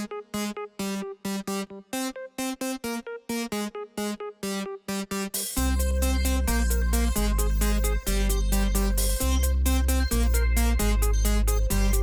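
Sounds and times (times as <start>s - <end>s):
upbeat electronic synthesizer music: 0.0s - 12.0s.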